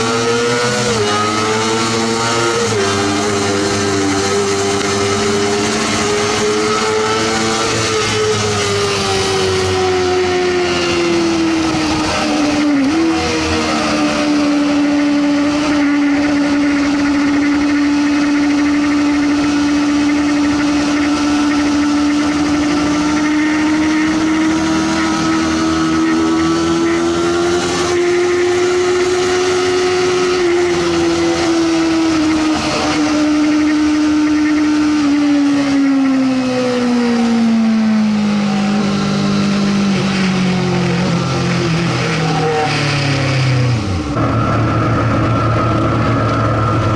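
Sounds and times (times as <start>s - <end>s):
motorcycle engine revving high: 0.0s - 46.9s.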